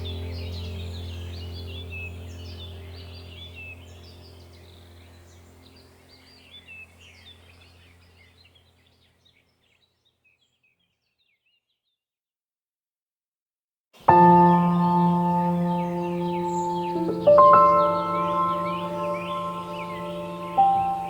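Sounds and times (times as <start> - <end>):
low steady hum: 0.0 - 9.1, 14.1 - 21.0
small birds chirping: 0.0 - 12.0, 14.0 - 21.0.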